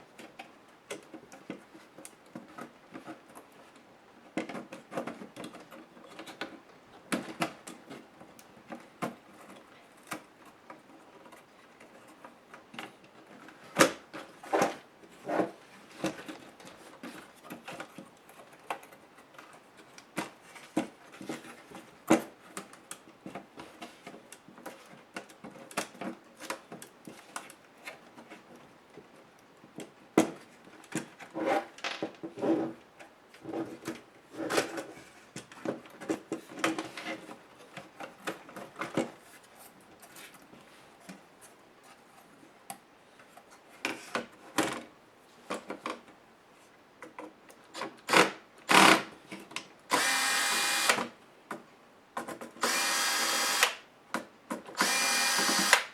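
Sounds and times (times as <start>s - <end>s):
electric screwdriver whirring: 48.7s - 49.0s, 49.9s - 51.0s, 52.6s - 53.8s, 54.8s - 55.9s.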